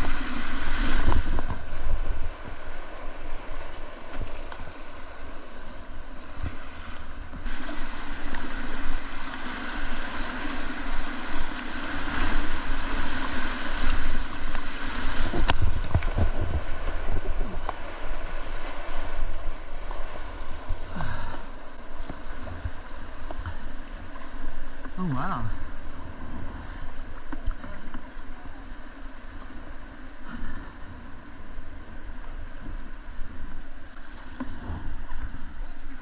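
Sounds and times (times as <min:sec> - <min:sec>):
wind rumble on microphone: 0:00.0 - 0:06.5, 0:07.2 - 0:21.4.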